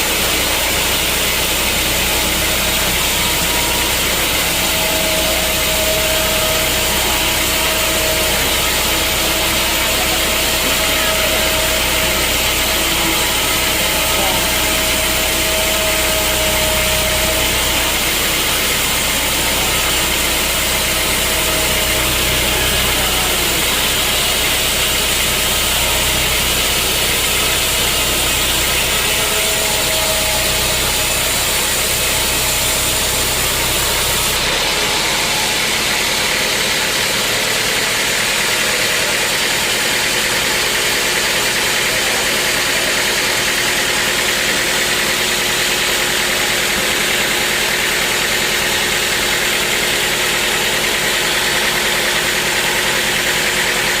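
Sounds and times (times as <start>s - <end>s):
low machinery hum: 0.0s - 41.3s
sawmill machinery running: 0.0s - 54.0s.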